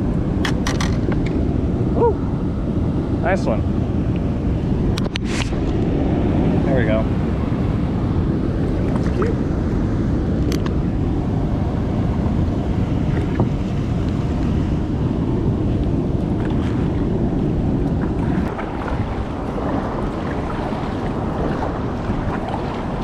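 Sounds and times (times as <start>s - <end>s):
wind buffeting microphone: 0.0s - 23.0s
river water rushing: 16.4s - 23.0s.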